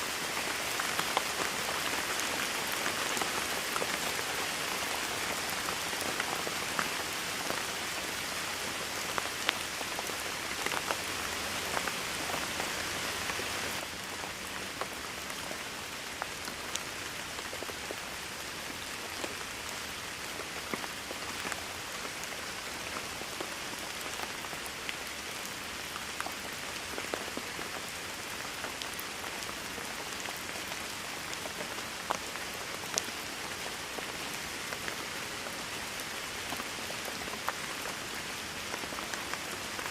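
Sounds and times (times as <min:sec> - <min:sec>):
rain hissing: 0:00.0 - 0:15.4.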